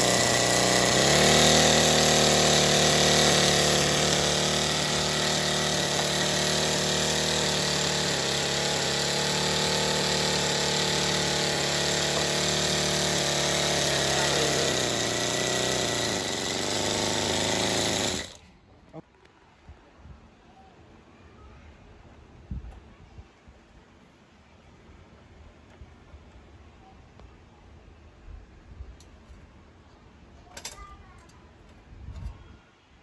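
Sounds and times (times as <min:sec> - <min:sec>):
small model engine running: 0:00.0 - 0:18.4.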